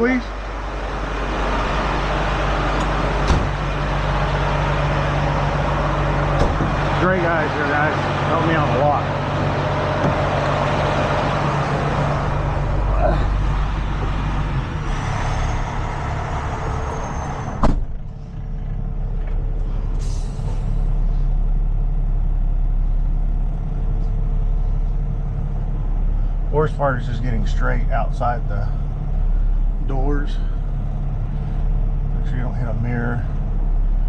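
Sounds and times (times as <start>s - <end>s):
truck engine running: 0.0s - 34.0s
air brake hiss: 20.0s - 21.3s.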